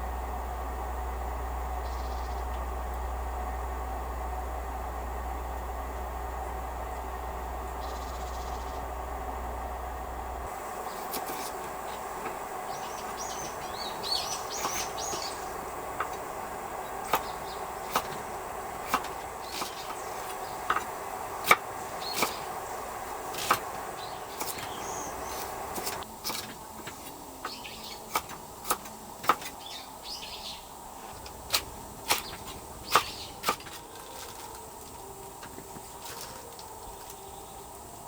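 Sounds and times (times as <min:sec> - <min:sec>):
low hum: 0:00.0 - 0:38.0
faint bird chirps: 0:01.8 - 0:02.5, 0:07.6 - 0:08.9, 0:11.9 - 0:15.6, 0:29.6 - 0:30.7, 0:32.2 - 0:33.4.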